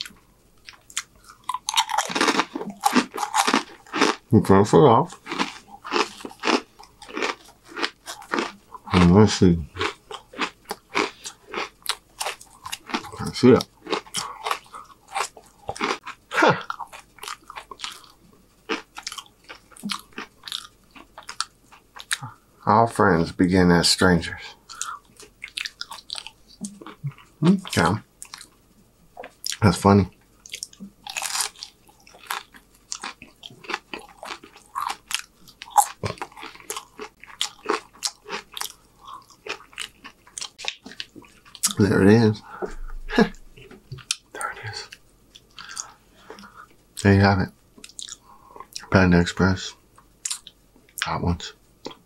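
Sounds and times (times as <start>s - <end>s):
crunching fortune cookie: 0.7s - 4.3s, 5.0s - 22.2s, 30.5s - 41.8s.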